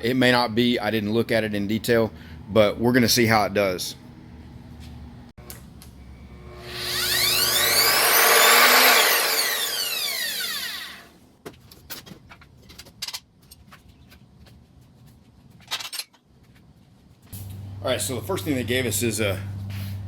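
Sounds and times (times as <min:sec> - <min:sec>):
mitre saw motor running: 0:06.2 - 0:11.2.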